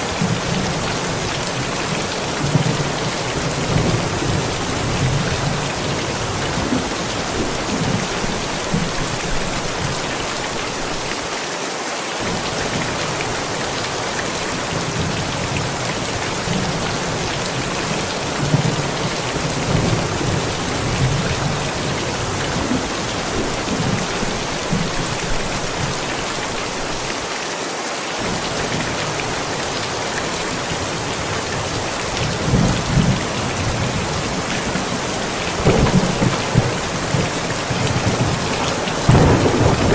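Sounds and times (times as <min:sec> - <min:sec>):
heavy rain: 0:00.0 - 0:39.9
rolling thunder: 0:32.2 - 0:39.9.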